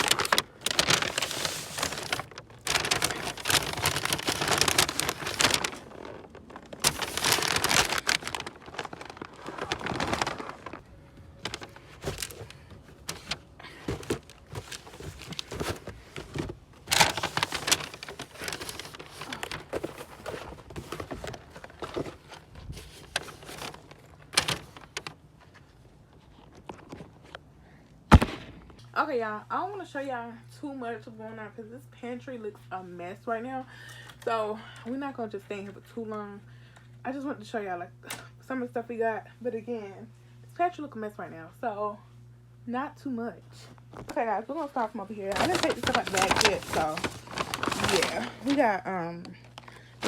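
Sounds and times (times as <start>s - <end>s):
paper bags rustling: 0.0s - 27.3s, 44.8s - 48.8s
items knocking and thudding: 11.4s - 25.0s.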